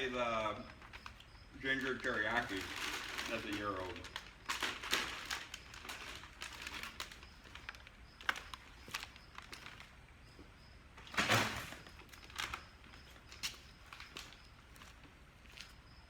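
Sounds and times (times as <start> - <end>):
plastic bag rustling: 0.7 - 10.0, 11.0 - 14.4.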